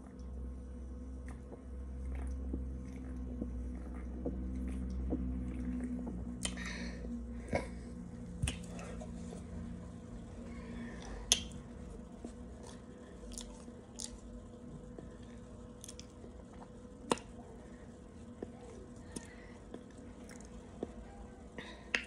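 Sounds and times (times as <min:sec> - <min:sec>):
dry cornstarch being chewed: 0:12.2 - 0:17.4.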